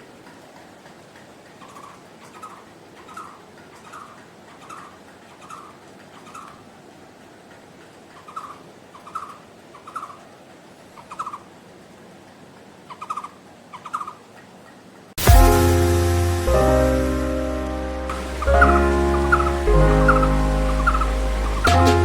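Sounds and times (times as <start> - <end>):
barbet trilled calls: 18.1 - 22.0.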